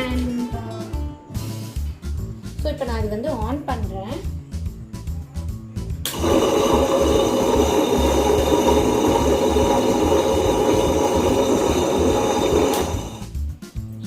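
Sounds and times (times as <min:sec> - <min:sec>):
wet grinder motor running: 0:06.1 - 0:13.3.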